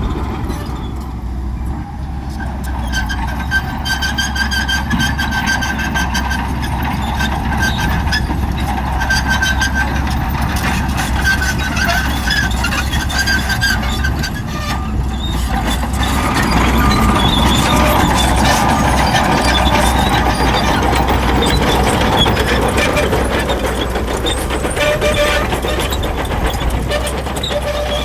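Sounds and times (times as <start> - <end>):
diesel engine rumble: 0.0 - 28.0
high-pitched squeaking: 11.2 - 28.0.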